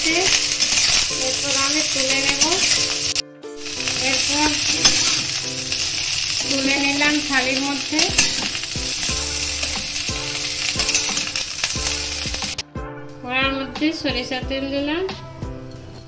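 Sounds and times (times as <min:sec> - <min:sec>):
cauliflower sizzling in hot oil: 0:00.0 - 0:12.6
metal spatula scraping pan: 0:00.0 - 0:12.6
background music: 0:00.0 - 0:16.0.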